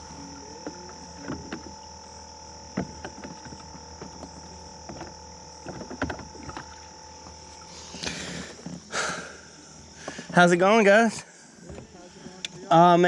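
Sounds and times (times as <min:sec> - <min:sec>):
gear knocking on plastic kayak hull: 0:00.0 - 0:01.9, 0:02.6 - 0:07.4
high-pitched background hum: 0:00.0 - 0:13.0.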